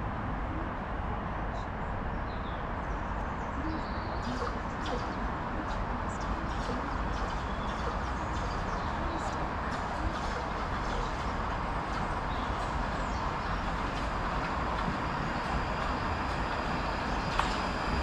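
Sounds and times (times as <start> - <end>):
outdoor background rumble: 0.0 - 18.0
birds chirping and calling: 3.6 - 14.1.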